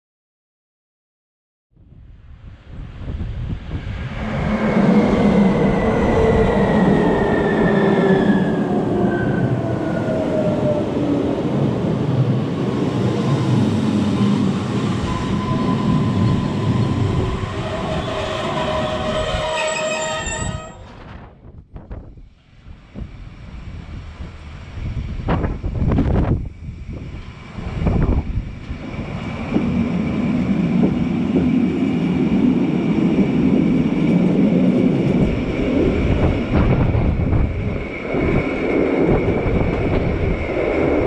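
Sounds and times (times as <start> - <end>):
train wheels rumbling on rails: 2.8 - 41.0
high brake squeal: 14.9 - 21.0.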